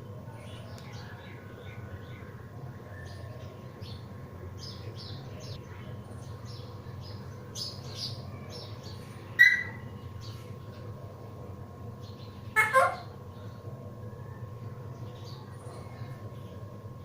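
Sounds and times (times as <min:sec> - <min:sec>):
steady low hum: 0:00.0 - 0:17.0
parrot chirping: 0:09.4 - 0:09.8, 0:12.6 - 0:13.1.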